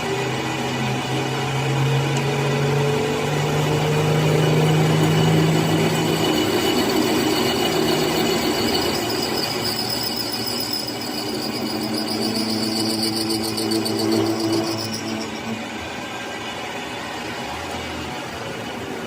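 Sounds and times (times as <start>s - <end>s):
faint high whine: 4.4s - 17.8s.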